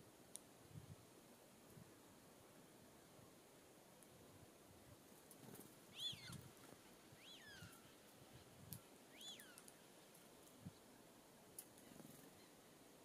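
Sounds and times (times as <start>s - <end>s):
bird whistled notes: 6.0s - 6.4s, 9.1s - 9.6s.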